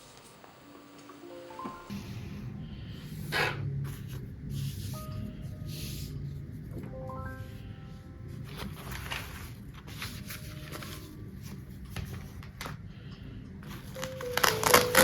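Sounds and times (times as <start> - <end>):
music notes: 1.0 - 2.3, 6.8 - 9.0.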